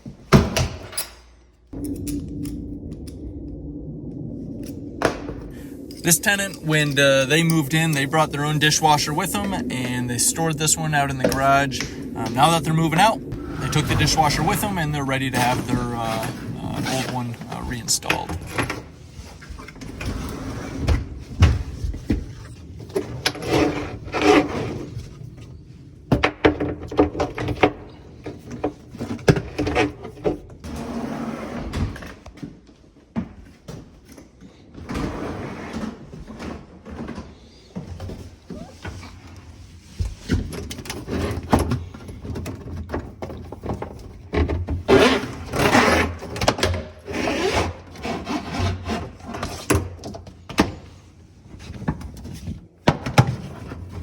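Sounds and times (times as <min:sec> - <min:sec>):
knocks and clunks of installation work: 0:00.0 - 0:02.6, 0:39.8 - 0:51.0.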